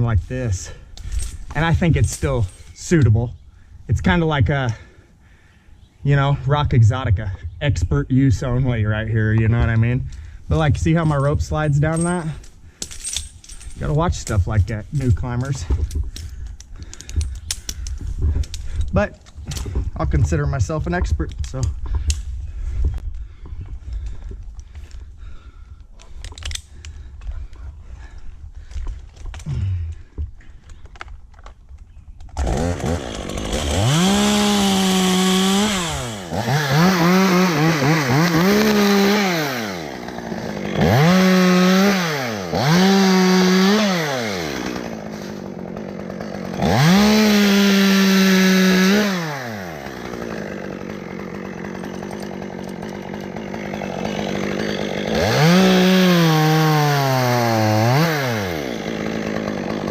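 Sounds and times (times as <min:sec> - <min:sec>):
chainsaw revving and idling: 0:32.4 - 0:59.9.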